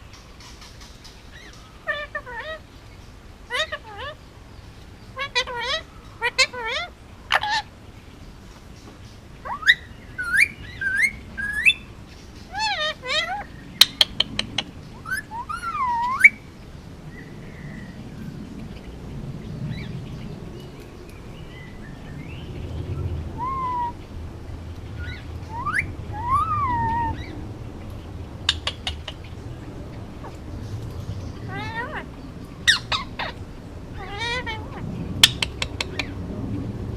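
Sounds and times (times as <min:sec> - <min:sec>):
parakeet whistling and chirping: 0:09.4 - 0:11.9, 0:15.0 - 0:16.4, 0:23.3 - 0:24.0, 0:25.0 - 0:27.4, 0:32.7 - 0:33.4.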